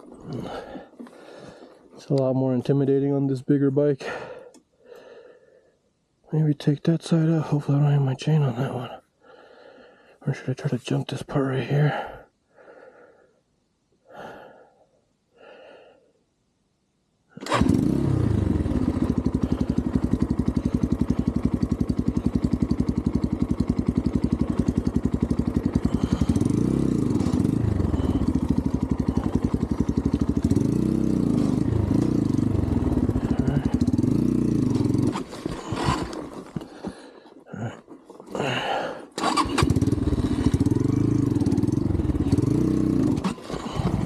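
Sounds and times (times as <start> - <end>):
dirt bike engine revving: 17.4 - 36.4, 38.4 - 44.0.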